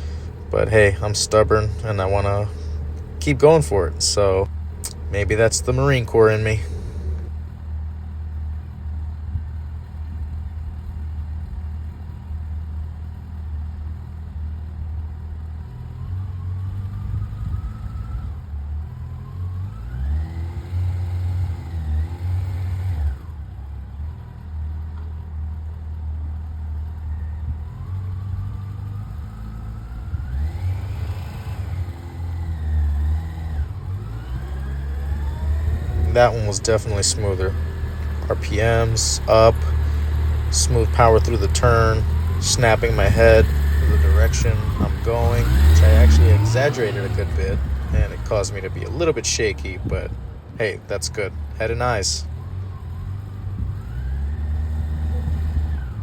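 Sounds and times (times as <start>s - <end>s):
motorcycle engine revving: 0.0s - 8.8s, 15.8s - 23.7s, 27.1s - 56.0s.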